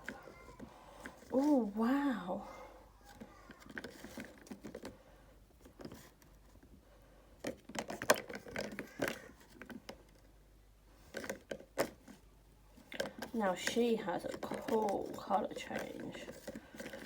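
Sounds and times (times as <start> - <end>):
plastic toy clicks and rustles: 3.0 - 5.0, 7.4 - 10.3, 11.0 - 12.2, 12.9 - 17.0.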